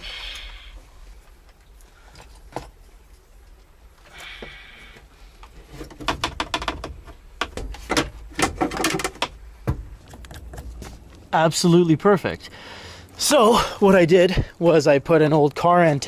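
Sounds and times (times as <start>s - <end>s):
rapid clicks knocks and rattles: 5.8s - 10.9s.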